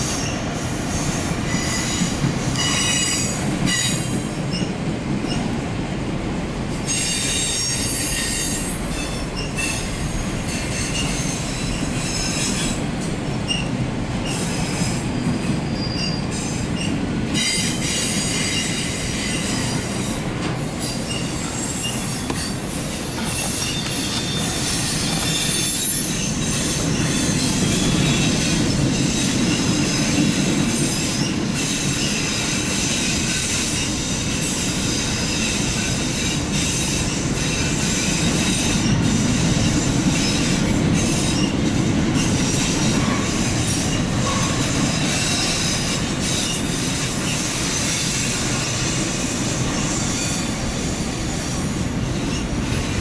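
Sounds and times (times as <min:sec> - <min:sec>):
wheels rumbling on rails: 0:00.0 - 0:53.0
high-pitched wheel squeal: 0:13.5 - 0:19.9, 0:20.8 - 0:30.2, 0:40.2 - 0:41.6.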